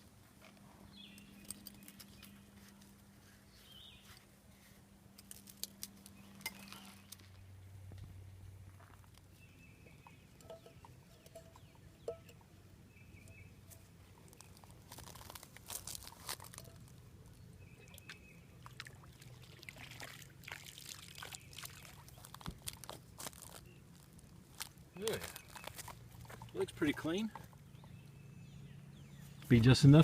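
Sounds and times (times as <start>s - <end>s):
water pouring into container: 18.6s - 22.1s.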